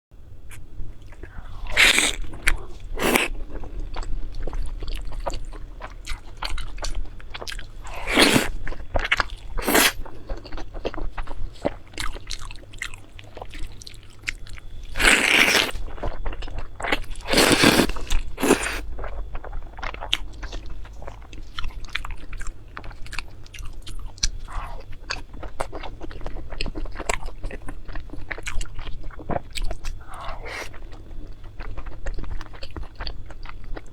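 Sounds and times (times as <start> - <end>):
person crunching food: 0.5 - 33.9
soft chewing: 0.5 - 33.9.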